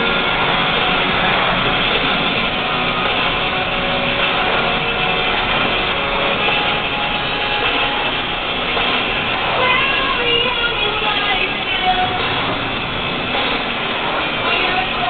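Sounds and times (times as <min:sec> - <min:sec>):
faint radio music: 0:00.0 - 0:15.0
in-cab truck drive noise: 0:00.0 - 0:15.0
tyres on road: 0:00.0 - 0:15.0.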